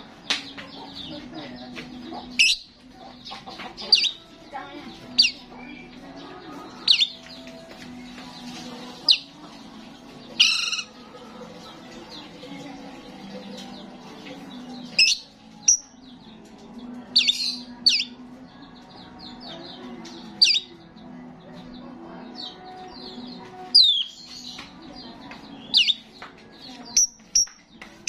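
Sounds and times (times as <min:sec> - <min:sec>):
starling calling: 0:05.1 - 0:05.9, 0:06.7 - 0:07.3, 0:10.4 - 0:11.0, 0:20.4 - 0:20.7, 0:25.6 - 0:26.0.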